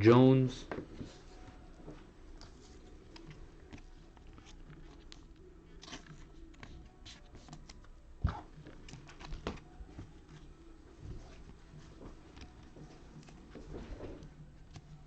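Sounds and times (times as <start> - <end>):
cards sliding and flipping: 2.4 - 10.5.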